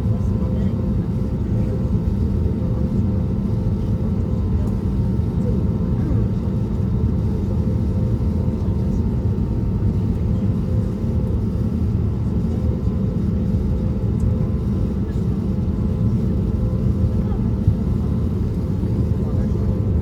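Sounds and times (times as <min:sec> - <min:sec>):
aircraft cabin engine drone: 0:00.0 - 0:20.0.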